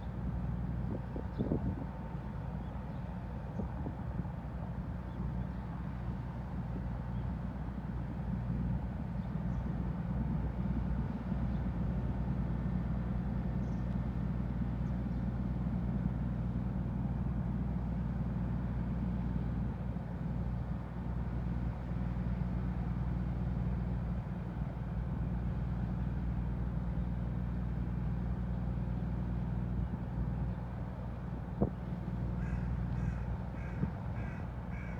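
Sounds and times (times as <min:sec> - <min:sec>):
ship engines droning: 0:00.0 - 0:34.9.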